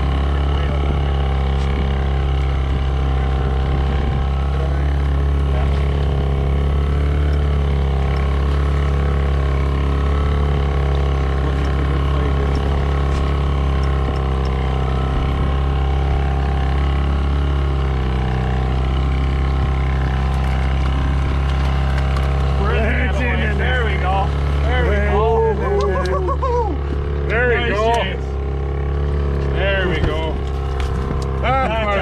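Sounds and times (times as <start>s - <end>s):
boat motor droning: 0.0s - 32.0s.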